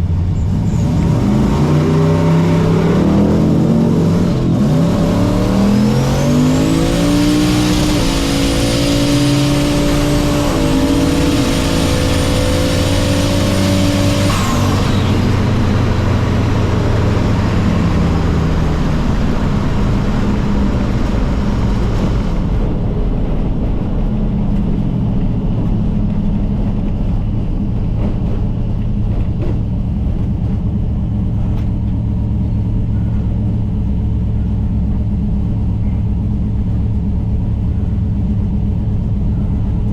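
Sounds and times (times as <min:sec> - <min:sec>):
engine at full throttle: 0:00.0 - 0:39.9
high turbo whine: 0:00.0 - 0:39.9.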